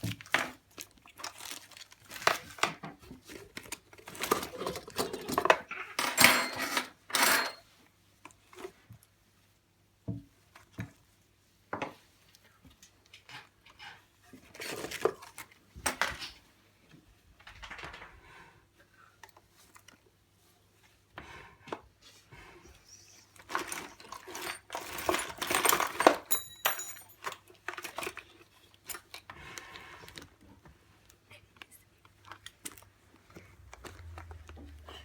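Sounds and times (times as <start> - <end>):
utensils clattering in a drawer: 4.0 - 7.7, 23.4 - 29.2.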